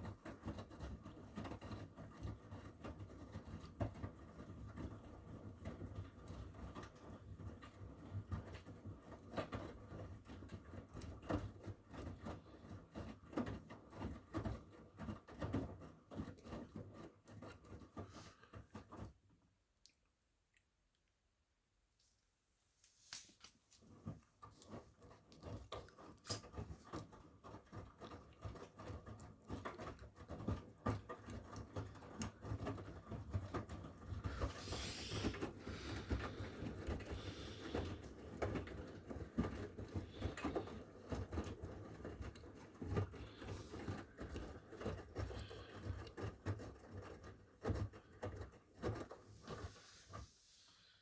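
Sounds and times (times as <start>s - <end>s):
laundry tumbling and sloshing: 22.9s - 51.0s
washing machine motor hum: 23.8s - 51.0s.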